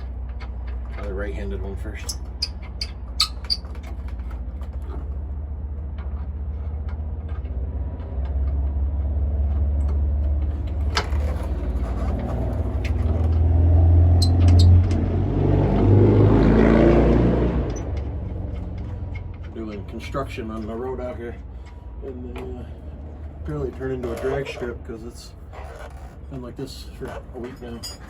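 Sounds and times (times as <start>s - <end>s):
road traffic rumble: 0.0s - 28.0s
vehicle accelerating hard: 0.8s - 21.0s.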